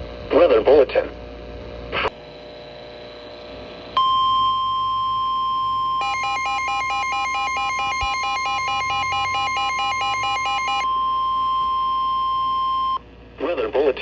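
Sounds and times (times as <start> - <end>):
steady high alarm beep: 4.0 - 13.0
fast warbling electronic beeps: 6.0 - 10.9.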